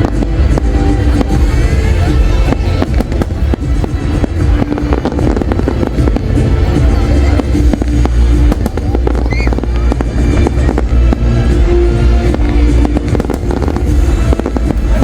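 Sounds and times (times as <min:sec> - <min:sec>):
fireworks bangs and crackles: 0:00.0 - 0:15.0
loud music with held tones: 0:00.0 - 0:15.0.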